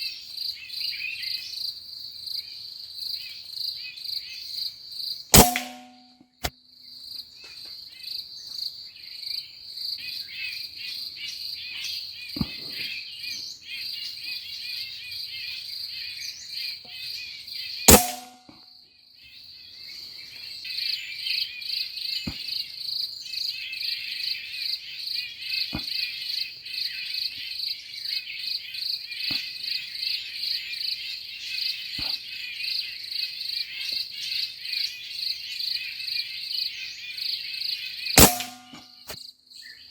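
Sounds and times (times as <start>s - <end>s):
air rifle shots: 5.4s - 6.0s, 17.9s - 18.5s, 38.2s - 38.8s.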